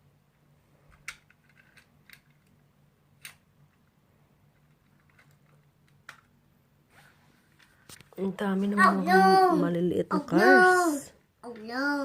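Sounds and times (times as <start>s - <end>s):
faint low hum: 0.0s - 12.0s
plastic toy cars clicking: 0.9s - 2.6s, 4.6s - 6.3s.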